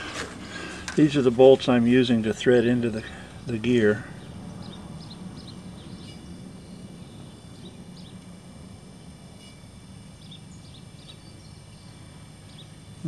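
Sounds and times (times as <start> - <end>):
low hum: 0.0 - 13.0
small birds chirping: 2.0 - 8.3, 9.4 - 13.0.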